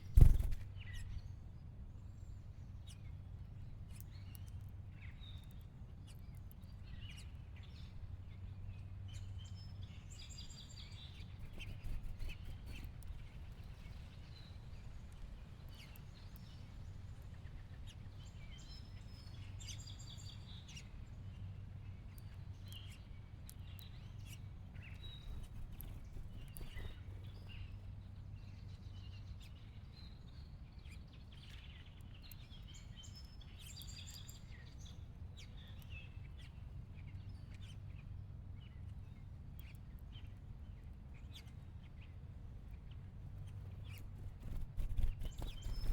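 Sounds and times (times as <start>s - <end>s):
low background hum: 0.0s - 45.9s
finches chirping: 25.0s - 27.6s, 44.4s - 45.9s.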